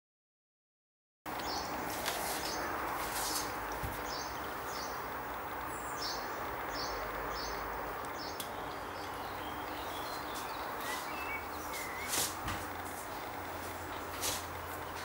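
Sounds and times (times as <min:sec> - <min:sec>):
small birds chirping: 0:01.3 - 0:15.0
steady outdoor hiss: 0:01.3 - 0:15.0
sharp clicks: 0:08.0 - 0:09.9
whistled bird notes: 0:08.2 - 0:12.3.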